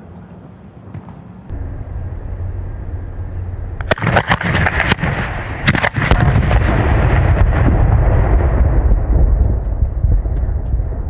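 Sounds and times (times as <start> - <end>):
fireworks rushing roar: 1.5 - 11.0
fireworks bangs and cracks: 3.8 - 11.0.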